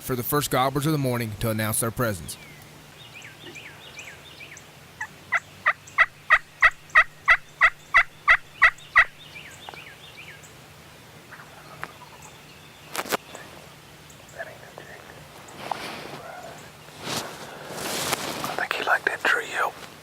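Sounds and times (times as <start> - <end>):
small birds chirping: 2.0 - 20.0
turkey yelps: 5.0 - 9.1, 11.3 - 12.0.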